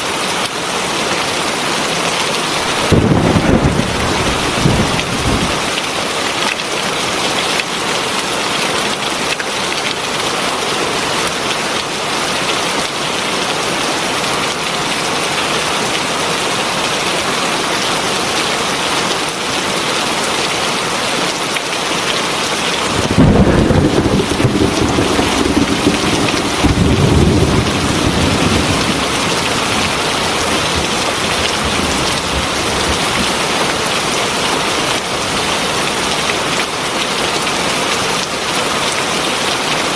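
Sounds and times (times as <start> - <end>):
heavy rain: 0.0 - 39.9
deep roll of thunder: 2.6 - 5.8, 22.8 - 33.8.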